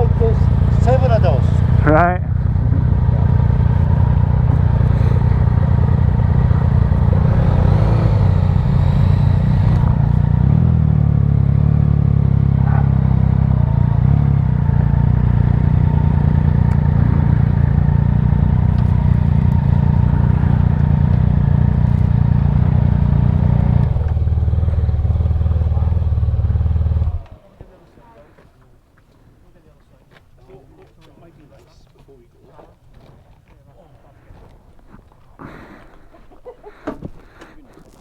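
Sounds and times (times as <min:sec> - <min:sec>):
motorcycle engine running: 0:00.0 - 0:27.5.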